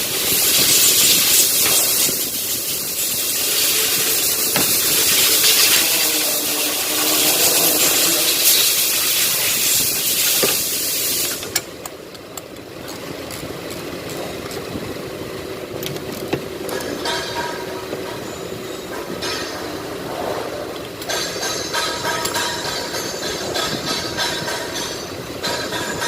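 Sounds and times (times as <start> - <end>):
loud steady hiss: 0.0 - 11.7.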